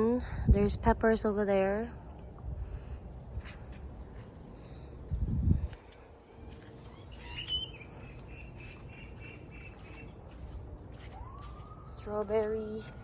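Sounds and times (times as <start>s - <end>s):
distant siren: 6.3s - 13.0s
bird chirping: 6.8s - 10.4s.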